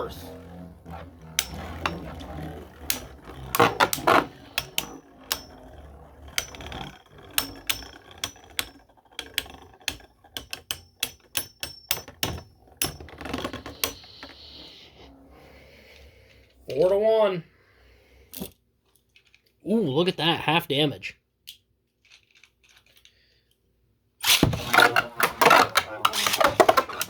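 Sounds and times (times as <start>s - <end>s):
spinning tops clashing: 0.2s - 14.7s, 24.2s - 27.0s.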